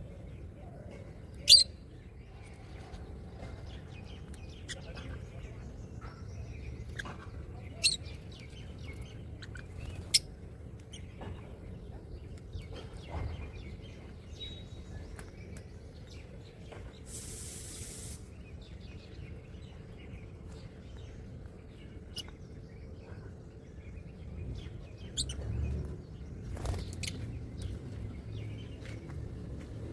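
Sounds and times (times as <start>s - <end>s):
birds chirping: 0.0s - 29.9s
low background hum: 0.0s - 29.9s
brief hiss: 17.1s - 18.4s.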